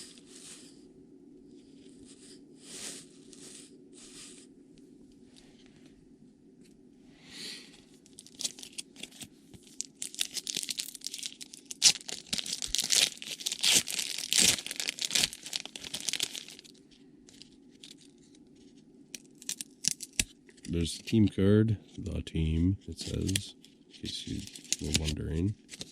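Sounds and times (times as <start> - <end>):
wrapper being torn and crinkled: 8.0 - 18.4, 19.2 - 20.4, 23.0 - 23.5, 24.1 - 25.9.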